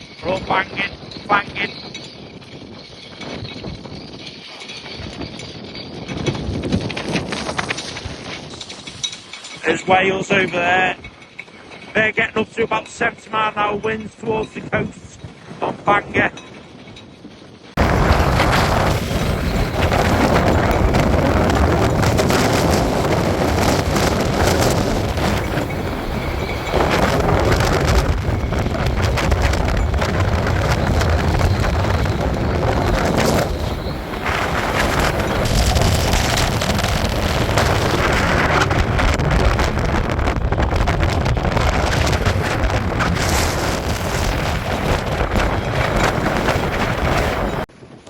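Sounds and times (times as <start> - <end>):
strong wind on microphone: 0.0 - 48.0.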